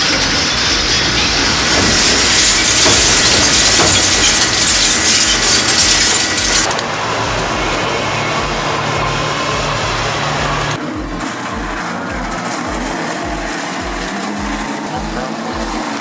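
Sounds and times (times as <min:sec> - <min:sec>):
shredder grinding scrap: 0:00.0 - 0:10.6.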